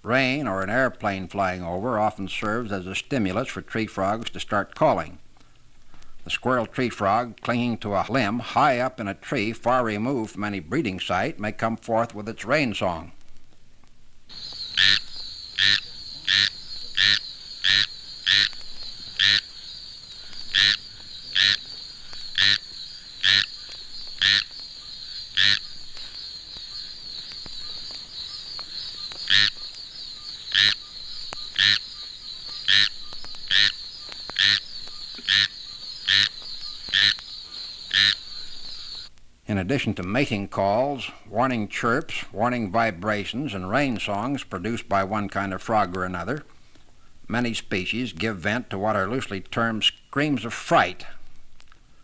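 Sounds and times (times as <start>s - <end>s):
tree frog raspy calls: 0.0s - 13.3s, 14.3s - 51.6s.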